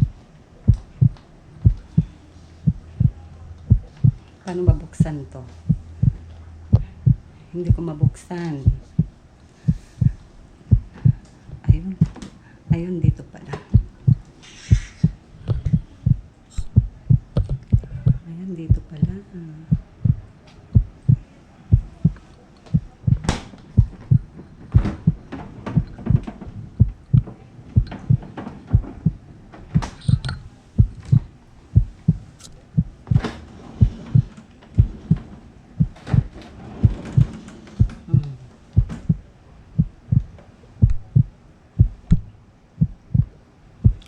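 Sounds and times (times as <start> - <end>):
low heartbeat-like thump: 0.0 - 44.0
handling clicks and knocks: 22.0 - 31.3.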